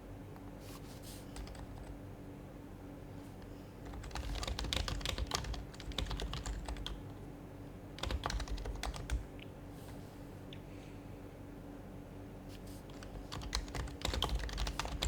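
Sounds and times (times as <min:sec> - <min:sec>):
keyboard typing: 0:01.3 - 0:02.0, 0:03.8 - 0:07.0, 0:08.0 - 0:09.2, 0:12.9 - 0:15.0.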